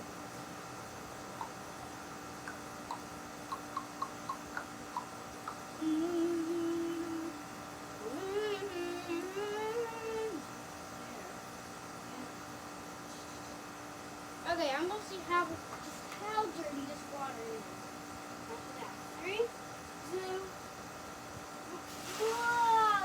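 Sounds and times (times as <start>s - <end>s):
steady electrical hum: 0.0s - 23.0s
person humming a tune: 5.5s - 10.5s.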